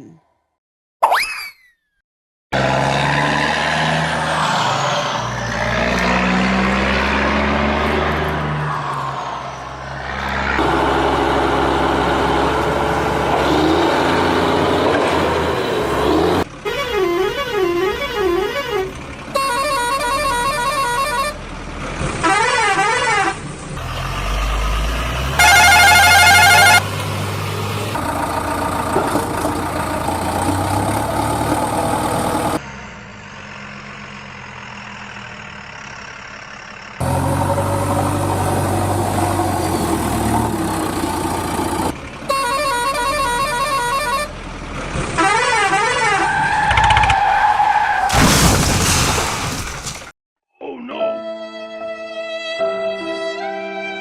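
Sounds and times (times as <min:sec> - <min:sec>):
heavy engines running: 0:02.6 - 0:47.4
vehicle horn blast: 0:16.0 - 0:21.4, 0:22.2 - 0:23.4, 0:25.4 - 0:26.8, 0:42.3 - 0:44.4, 0:45.2 - 0:46.3.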